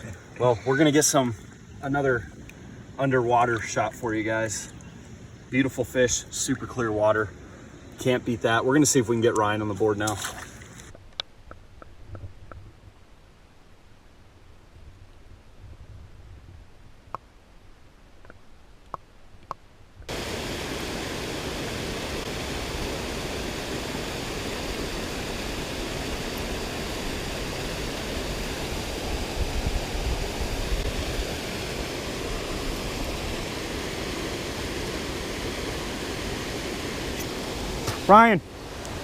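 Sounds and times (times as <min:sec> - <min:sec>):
rushing creek water: 0:00.0 - 0:11.0, 0:20.1 - 0:39.0.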